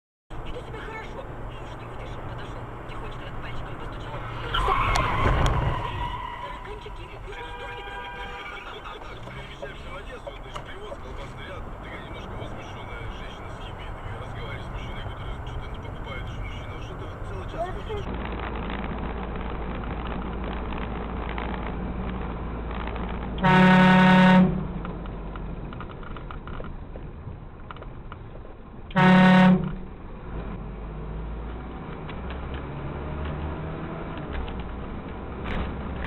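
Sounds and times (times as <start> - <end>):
vehicle driving rumble: 0.3 - 36.0
car horn honking: 4.2 - 9.8, 23.4 - 24.8, 28.9 - 29.8.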